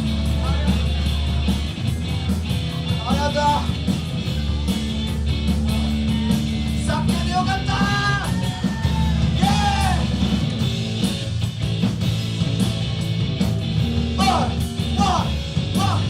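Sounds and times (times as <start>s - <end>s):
rock band playing live: 0.0s - 16.0s
person singing: 5.6s - 10.2s.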